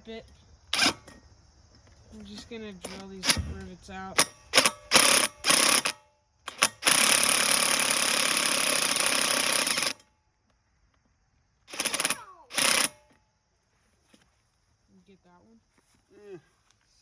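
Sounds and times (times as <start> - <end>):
power drill drilling metal: 0.8 - 1.1, 4.6 - 10.0, 11.7 - 13.0.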